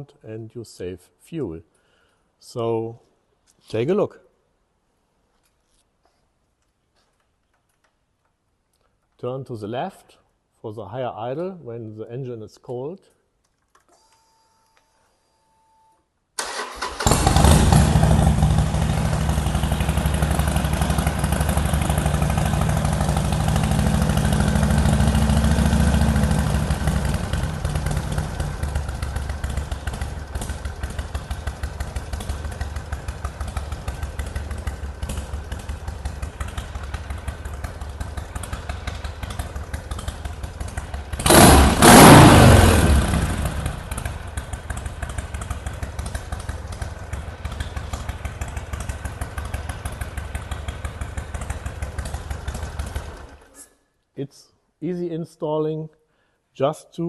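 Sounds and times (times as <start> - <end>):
motorcycle engine revving: 16.4 - 53.6
motorcycle engine starting and idling: 16.4 - 53.7.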